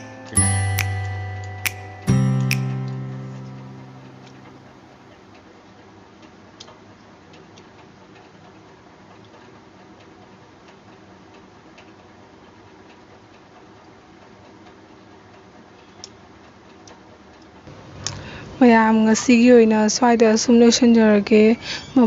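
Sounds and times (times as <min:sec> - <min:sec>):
faint small clicks: 0:14.2 - 0:18.2.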